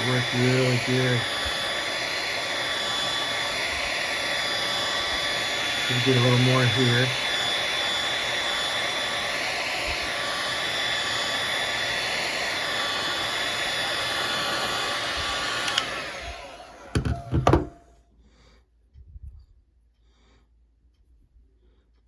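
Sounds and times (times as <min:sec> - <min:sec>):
heat gun blowing hot air: 0:00.0 - 0:17.9
heat gun switch click: 0:15.6 - 0:16.0.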